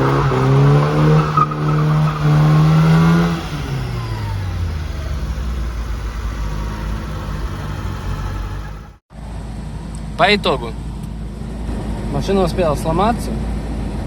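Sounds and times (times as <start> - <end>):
car engine revving down: 0.0 - 9.0
road noise: 0.0 - 14.0.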